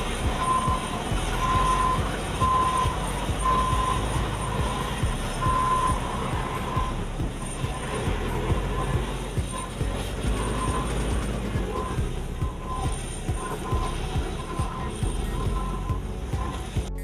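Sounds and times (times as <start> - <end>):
back-up alarm beeping: 0.0 - 17.0
diesel engines rumbling: 0.0 - 17.0.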